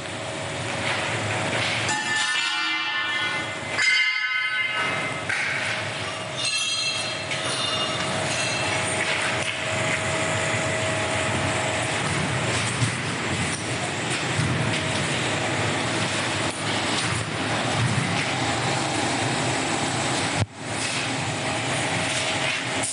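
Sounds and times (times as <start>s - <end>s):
industrial machinery humming: 0.0s - 22.9s
high-pitched machine squeals: 1.9s - 5.1s, 6.1s - 8.8s.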